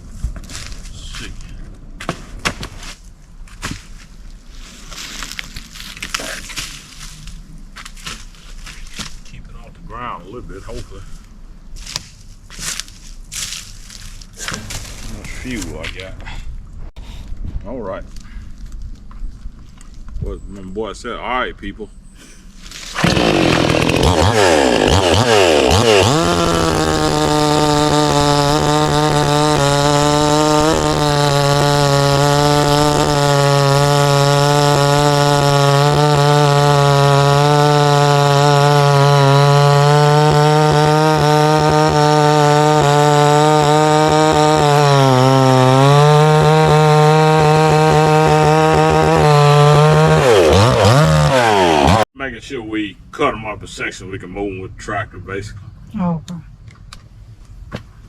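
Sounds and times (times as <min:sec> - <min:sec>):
chainsaw cutting log: 0:22.7 - 0:52.1
chainsaw revving: 0:22.9 - 0:52.1.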